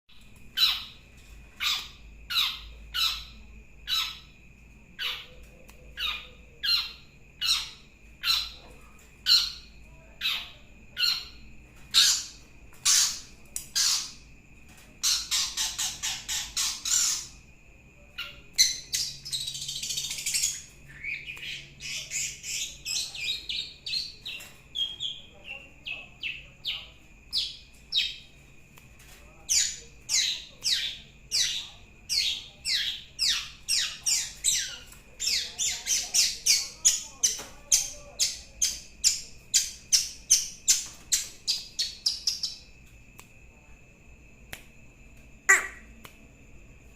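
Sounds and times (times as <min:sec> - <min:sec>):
scratchy chatter and twittering: 0:00.3 - 0:43.0
bird call rattle: 0:15.0 - 0:17.4, 0:45.5 - 0:45.9
shrike harsh calls: 0:45.4 - 0:45.9.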